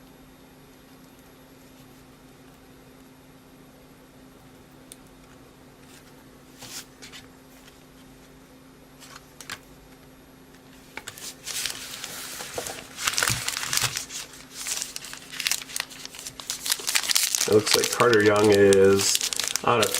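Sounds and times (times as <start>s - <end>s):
card pack wrapper crinkling: 11.0s - 19.9s.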